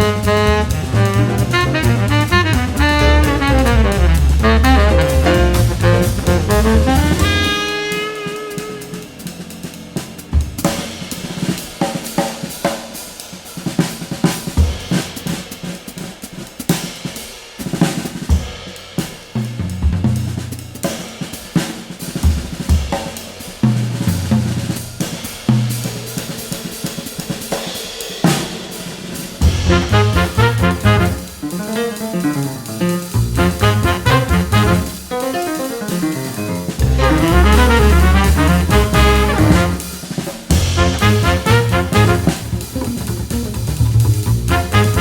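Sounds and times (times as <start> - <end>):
short bass notes: 0.0 - 7.7, 29.4 - 31.3, 33.0 - 35.0, 36.1 - 39.9, 40.5 - 45.0
held horn note: 0.0 - 9.6, 29.4 - 31.8, 33.1 - 43.6, 44.5 - 45.0
jazz drum kit playing: 0.0 - 45.0.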